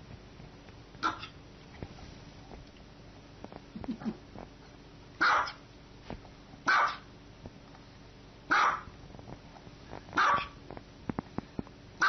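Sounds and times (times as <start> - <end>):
small dog barking: 1.0 - 1.4, 5.2 - 5.6, 6.7 - 7.1, 8.5 - 8.9, 10.2 - 10.6.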